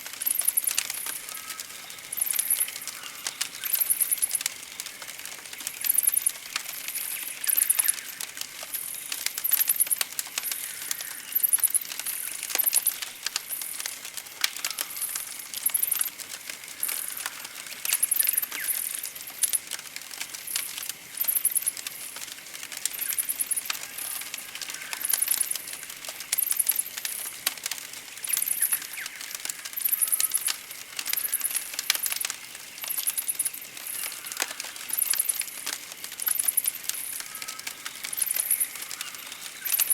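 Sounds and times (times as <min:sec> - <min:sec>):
campfire crackling and popping: 0:00.0 - 0:39.9
birds chirping: 0:28.2 - 0:35.6, 0:36.2 - 0:39.9.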